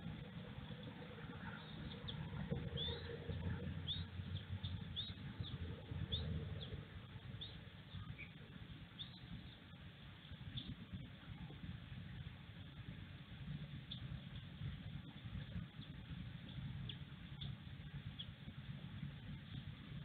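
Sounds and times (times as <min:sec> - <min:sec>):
steady low rumble: 0:00.0 - 0:20.0
high bird chirps: 0:01.6 - 0:06.8, 0:09.0 - 0:09.6.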